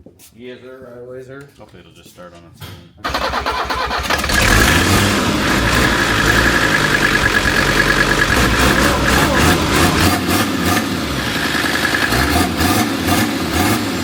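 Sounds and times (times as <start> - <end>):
diesel engine rumbling: 3.1 - 14.0.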